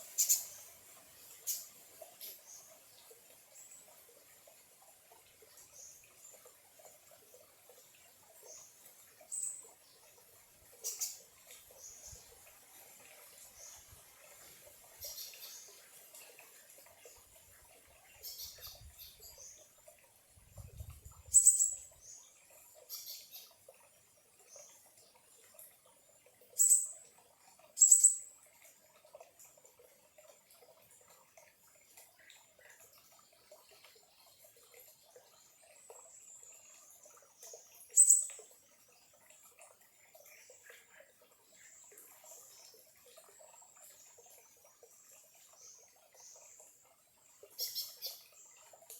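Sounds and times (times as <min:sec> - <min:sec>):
birds chirping: 0:00.0 - 0:00.7, 0:21.3 - 0:22.2, 0:47.6 - 0:48.3
small stream trickling: 0:00.0 - 0:48.9.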